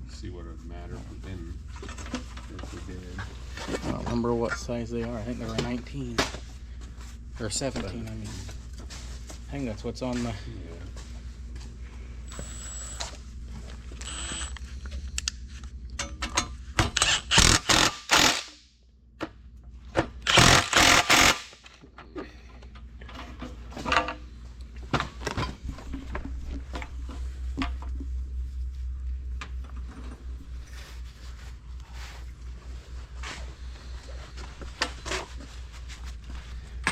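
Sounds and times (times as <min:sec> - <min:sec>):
steady low hum: 0:00.0 - 0:36.9
pneumatic impact wrench rattling: 0:14.0 - 0:14.6, 0:16.9 - 0:18.6, 0:20.2 - 0:21.7.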